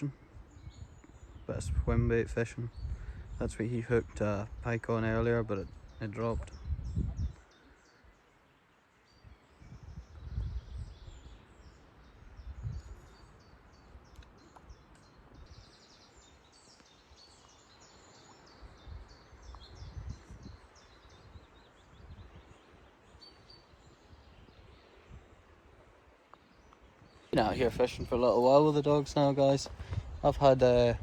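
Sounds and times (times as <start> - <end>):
low rumbles on microphone: 0.0 - 7.4, 9.5 - 13.2, 18.6 - 22.8, 27.3 - 31.0
small birds chirping: 0.0 - 31.0.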